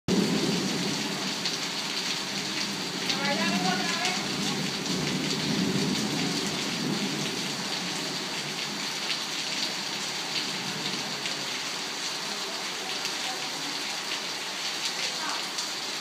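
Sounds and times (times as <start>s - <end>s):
torrential rain hissing: 0.1s - 16.0s
thunder rumbling: 2.5s - 8.8s.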